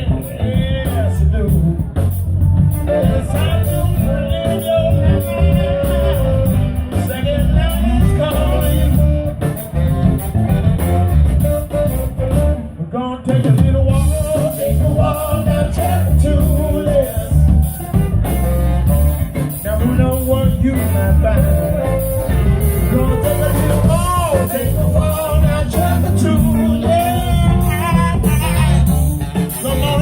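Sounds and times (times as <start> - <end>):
blues band playing: 0.0 - 30.0
wavering lead melody: 14.3 - 30.0.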